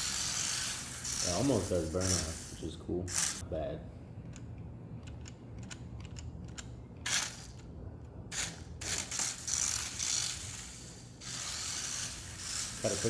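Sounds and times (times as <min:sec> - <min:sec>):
toy car motor whirring: 0:00.0 - 0:03.4, 0:07.0 - 0:07.6, 0:08.3 - 0:13.0.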